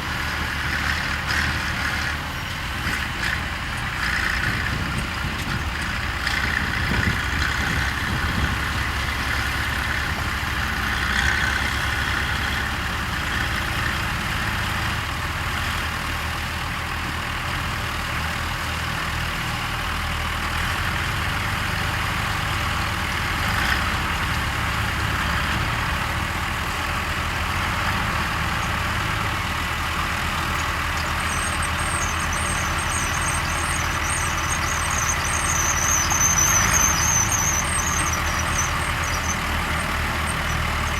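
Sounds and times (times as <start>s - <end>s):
harvester mechanical noise: 0.0s - 40.9s
tractor engines rumbling: 0.0s - 40.9s
high-pitched squeal: 30.3s - 40.9s.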